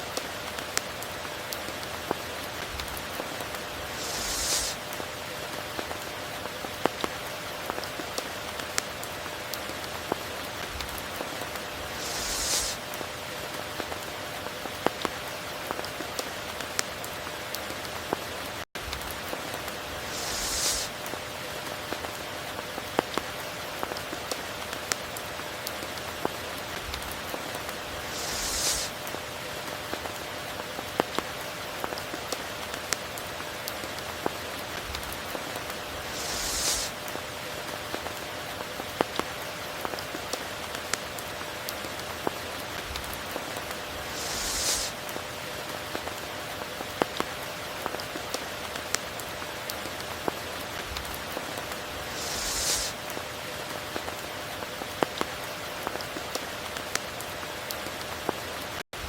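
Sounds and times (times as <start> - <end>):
steady rain falling: 0.0 - 59.0
bright hiss: 3.6 - 4.9, 11.7 - 13.0, 19.7 - 21.1, 27.7 - 29.1, 35.9 - 37.2, 43.7 - 45.1, 51.9 - 53.2.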